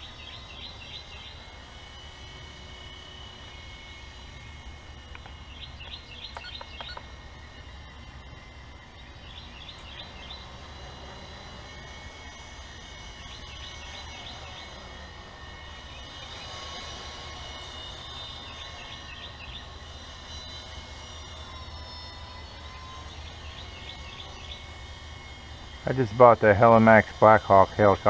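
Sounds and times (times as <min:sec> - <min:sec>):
rc helicopter motor whine: 0:00.0 - 0:28.0
bird calling: 0:05.1 - 0:07.1.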